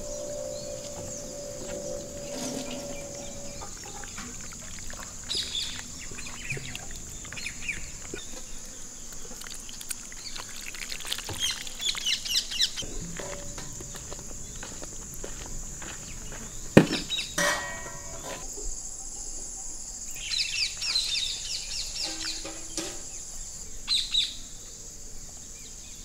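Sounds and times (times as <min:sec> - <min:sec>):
birds chirping: 0:00.0 - 0:10.5, 0:11.3 - 0:18.5
steady high-pitched hiss: 0:00.0 - 0:26.0.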